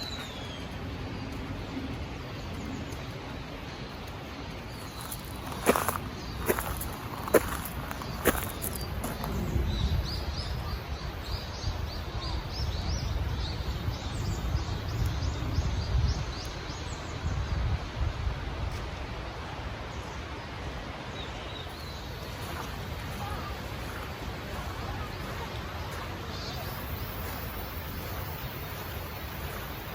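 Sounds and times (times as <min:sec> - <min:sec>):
mountain stream flowing: 0:00.0 - 0:09.6, 0:16.4 - 0:29.9.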